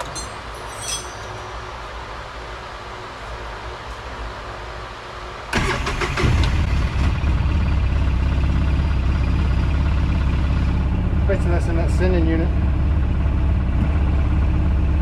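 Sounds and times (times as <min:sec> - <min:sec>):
engine idling: 0:05.5 - 0:15.0
engine starter cranking: 0:05.6 - 0:07.1.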